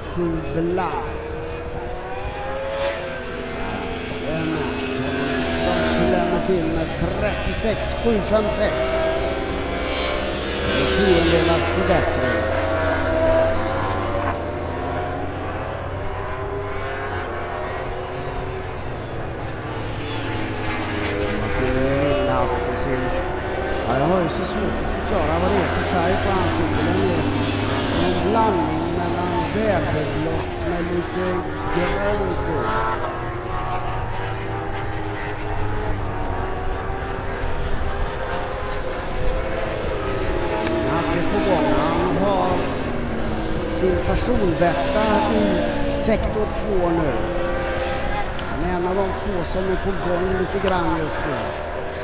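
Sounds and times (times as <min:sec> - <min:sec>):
motorcycle engines racing: 0:00.0 - 0:52.0.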